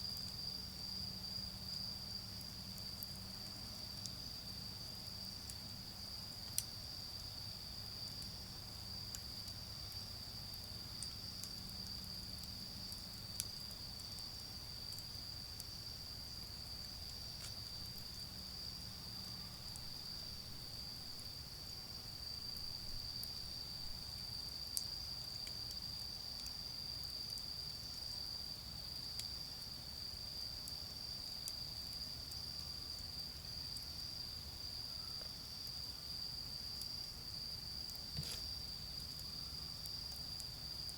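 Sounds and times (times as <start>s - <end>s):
insects chirring: 0.0s - 40.9s
charcoal fire popping: 2.3s - 26.6s, 37.8s - 39.1s.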